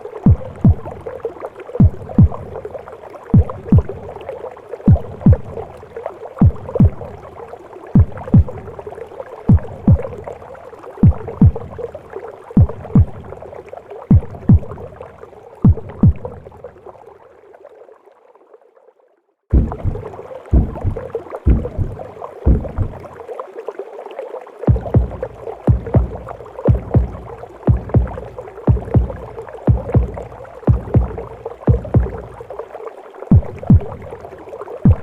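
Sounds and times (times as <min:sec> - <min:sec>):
heartbeat thumps: 0:00.2 - 0:01.1, 0:01.8 - 0:02.6, 0:03.3 - 0:04.1, 0:04.9 - 0:05.6, 0:06.4 - 0:07.2, 0:08.0 - 0:08.8, 0:09.5 - 0:10.2, 0:11.0 - 0:11.8, 0:12.6 - 0:13.4, 0:14.1 - 0:14.9, 0:15.6 - 0:16.5, 0:19.5 - 0:23.1, 0:24.7 - 0:32.5, 0:33.3 - 0:34.2.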